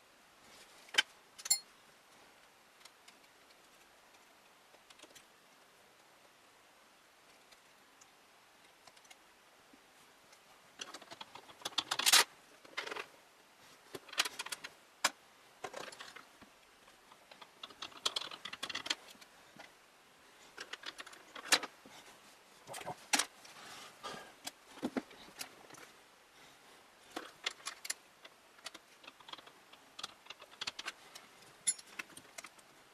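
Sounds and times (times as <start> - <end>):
small hard parts clicking and clattering: 2.7 - 5.3, 7.2 - 9.2, 10.3 - 13.1, 13.9 - 19.8, 20.5 - 21.8, 27.1 - 32.8.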